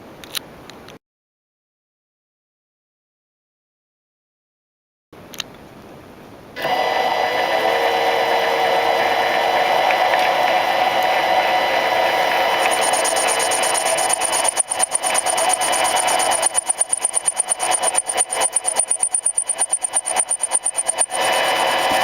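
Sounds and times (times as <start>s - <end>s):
model engine high-pitched buzz: 6.6s - 22.0s.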